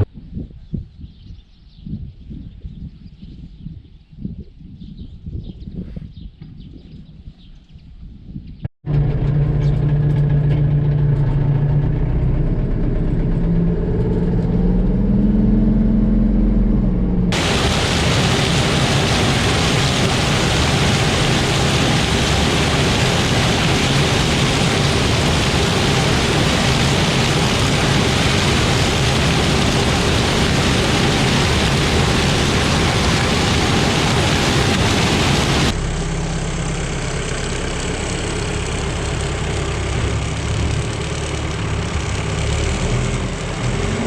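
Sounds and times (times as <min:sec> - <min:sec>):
tractor engine running: 0:17.3 - 0:43.5
loud steady hiss: 0:17.4 - 0:35.8.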